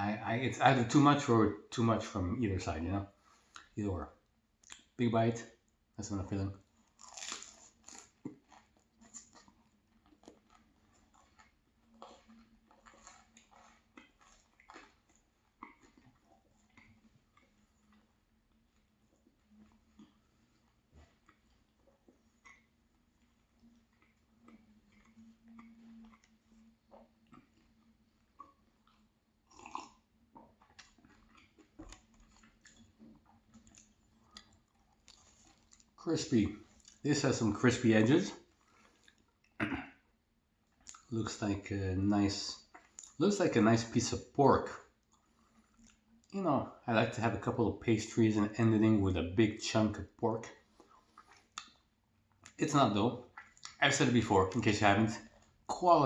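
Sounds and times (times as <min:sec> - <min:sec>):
wet chewing mouth clicks: 0:04.6 - 0:05.0, 0:07.0 - 0:37.0, 0:38.3 - 0:39.9, 0:40.7 - 0:41.1, 0:44.9 - 0:46.4, 0:50.5 - 0:52.6, 0:53.2 - 0:53.8.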